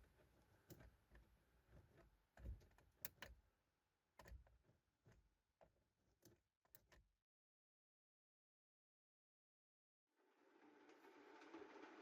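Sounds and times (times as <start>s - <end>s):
faint handling clicks and knocks: 0.0s - 3.5s, 4.1s - 7.1s.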